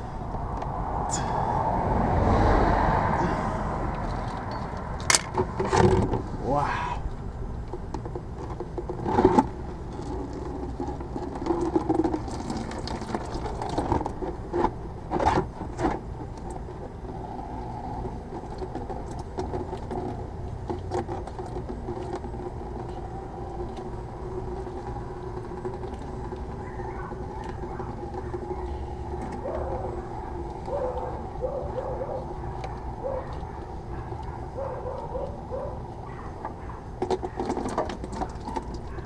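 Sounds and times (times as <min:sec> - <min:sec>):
steady mechanical hum: 0:00.0 - 0:39.0.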